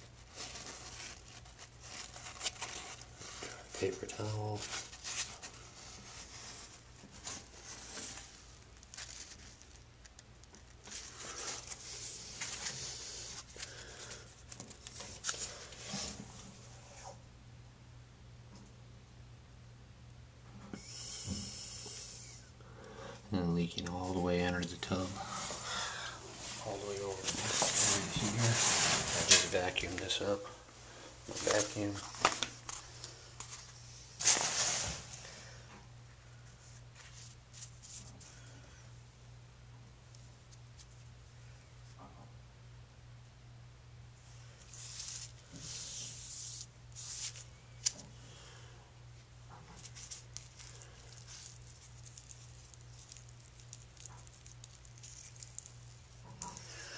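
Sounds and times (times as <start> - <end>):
paper towel rustling and crinkling: 0.0 - 17.1, 23.8 - 30.6, 31.3 - 35.2, 44.5 - 48.0, 49.6 - 56.2
low steady hum: 0.0 - 56.9
scraping rustle: 26.3 - 30.1.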